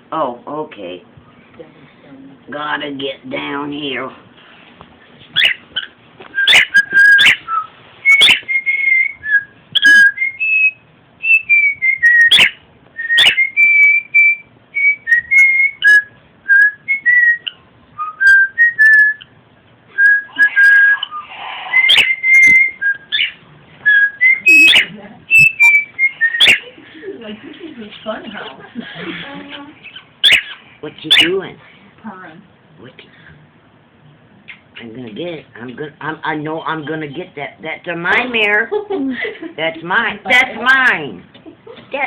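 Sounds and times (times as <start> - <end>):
cockatiel whistling a tune: 5.4 - 19.3, 20.0 - 26.7, 30.2 - 31.3.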